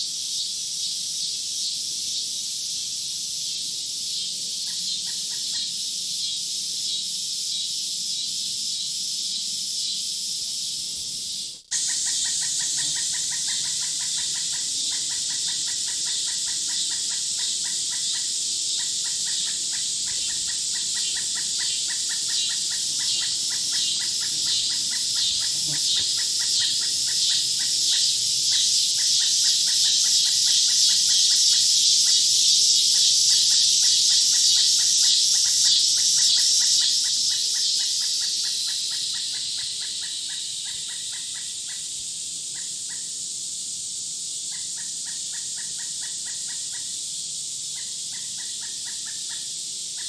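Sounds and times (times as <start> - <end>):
birds and insects chorus: 0.0 - 50.0
fast pulsing call: 11.7 - 31.1.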